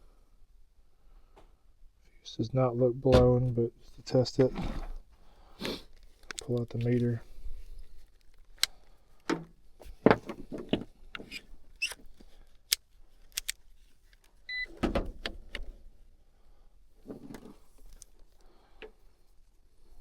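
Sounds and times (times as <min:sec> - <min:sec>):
multimeter handling clicks: 0:12.7 - 0:13.6.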